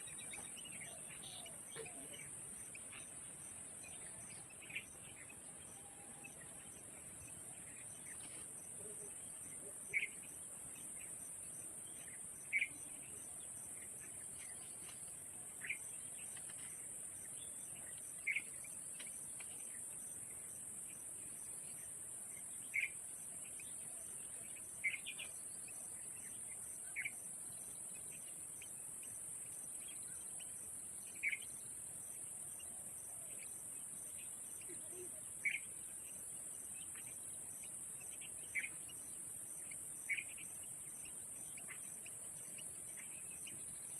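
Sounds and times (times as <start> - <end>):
bird chirps: 0.0 - 19.8, 29.8 - 31.7, 32.5 - 43.9
insects droning: 0.0 - 43.9.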